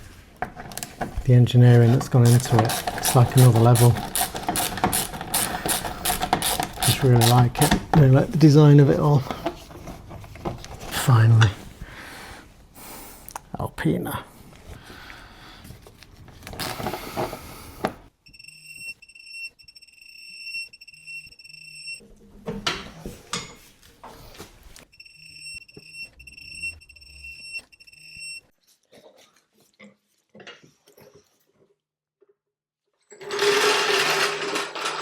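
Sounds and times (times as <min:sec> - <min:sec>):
electronic beeper pulses: 0:24.9 - 0:28.4.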